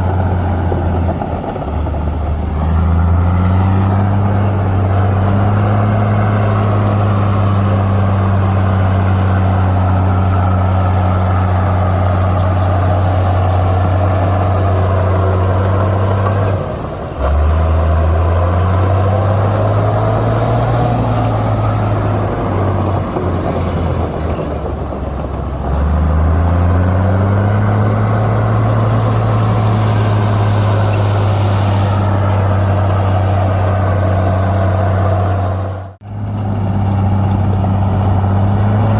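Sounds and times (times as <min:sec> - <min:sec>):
heavy diesel engine revving: 0:00.0 - 0:38.9.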